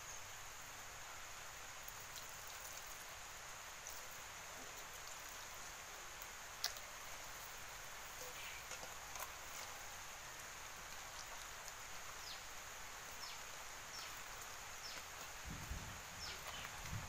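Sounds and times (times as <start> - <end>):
faint outdoor hiss: 0.0 - 17.0
small bird chirping: 8.1 - 8.8, 11.0 - 15.4, 16.1 - 17.0.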